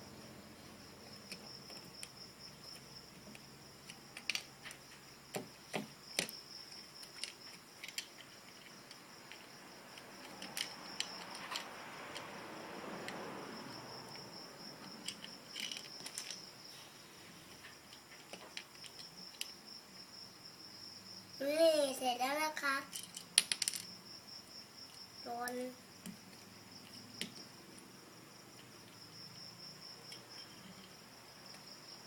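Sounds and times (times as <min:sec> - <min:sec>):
plastic bricks clicking and rattling: 0:01.1 - 0:12.2, 0:14.9 - 0:16.6, 0:22.9 - 0:23.9.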